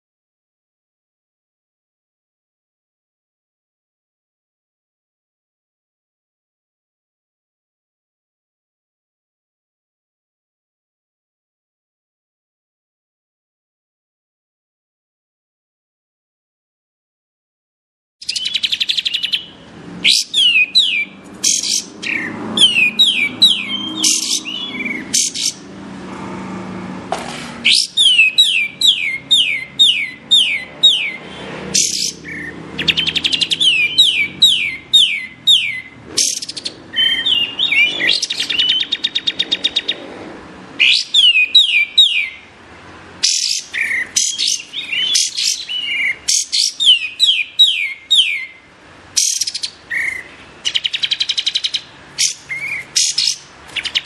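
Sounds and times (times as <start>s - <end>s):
songbird singing: 18.2s - 26.0s, 27.6s - 40.2s, 40.8s - 54.0s.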